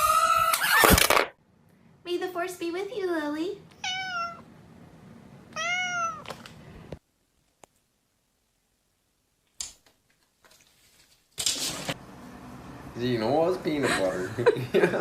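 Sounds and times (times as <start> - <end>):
cat meowing: 3.8 - 4.4, 5.5 - 6.3.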